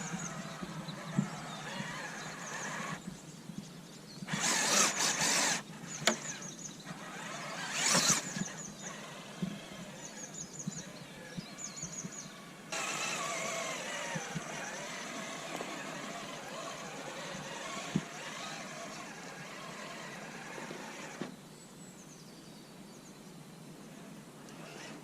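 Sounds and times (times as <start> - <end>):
toy car electric motor and gears: 0.0 - 3.1, 4.3 - 11.3, 12.0 - 21.3, 24.4 - 25.0.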